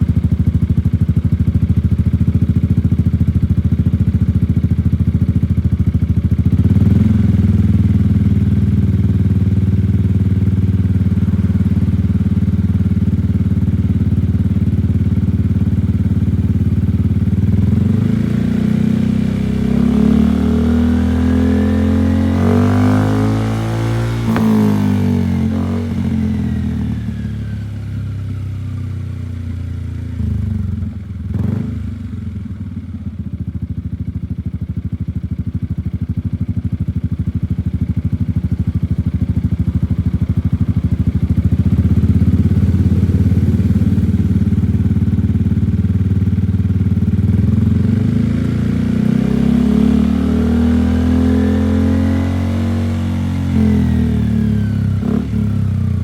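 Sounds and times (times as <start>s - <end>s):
scooter engine revving: 9.0s - 27.3s, 31.1s - 32.1s, 39.3s - 46.8s.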